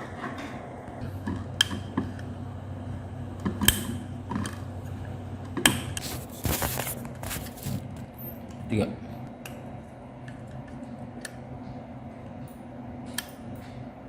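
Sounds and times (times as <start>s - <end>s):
steady low hum: 0.0s - 14.0s
scraping rustle: 6.0s - 7.9s.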